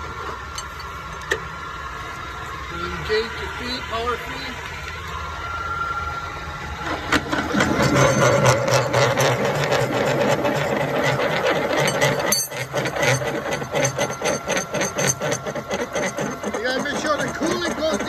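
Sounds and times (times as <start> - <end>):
drill press motor hum: 0.0 - 18.0
drill bit chattering in steel: 7.3 - 18.0.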